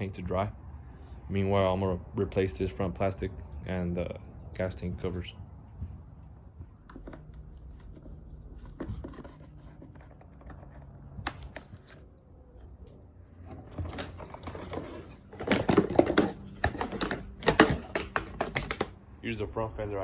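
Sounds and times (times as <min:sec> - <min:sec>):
clicks and taps on plastic: 0:15.4 - 0:19.0.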